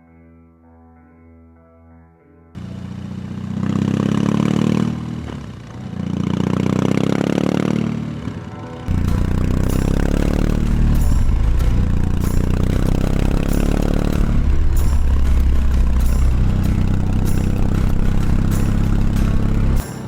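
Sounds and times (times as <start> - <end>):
motorcycle engine revving: 2.6 - 20.0.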